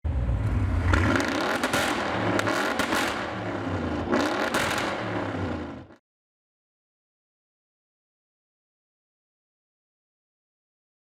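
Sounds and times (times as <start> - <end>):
car engine accelerating: 0.0 - 6.0
exhaust cracks: 0.0 - 6.0.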